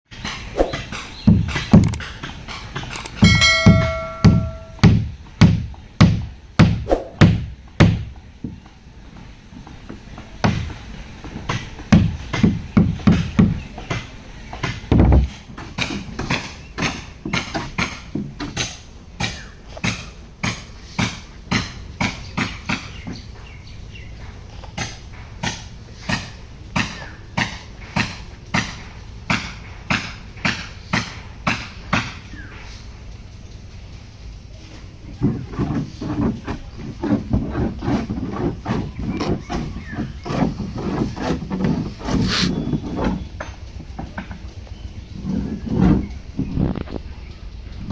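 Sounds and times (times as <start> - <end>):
knocking and thudding on wood: 0.7 - 1.9, 3.2 - 8.6, 11.4 - 14.0, 14.6 - 20.6
hand tool knocking on wood: 2.8 - 8.6.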